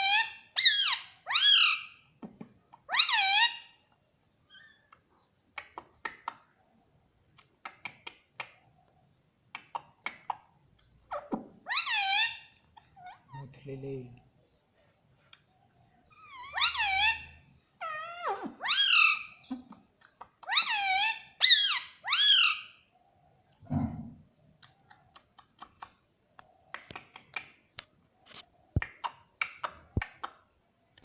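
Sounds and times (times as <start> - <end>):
parrot calling: 0.0 - 2.1, 2.9 - 3.8, 11.1 - 13.4, 16.1 - 19.6, 20.3 - 22.8.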